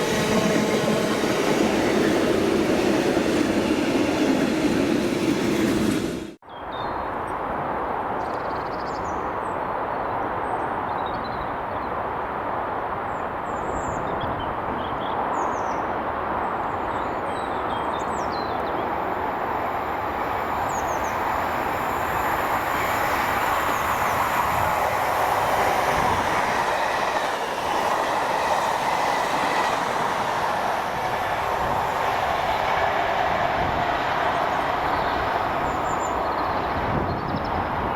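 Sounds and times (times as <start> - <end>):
train wheels on rails: 0.0 - 6.4, 17.4 - 37.9.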